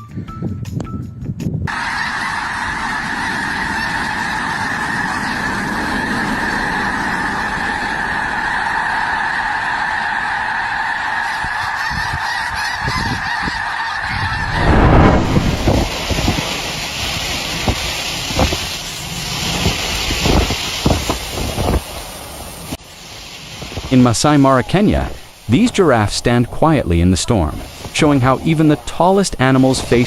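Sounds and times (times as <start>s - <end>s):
geese honking: 1.7s - 14.6s
loud low rushing noise: 14.1s - 16.6s.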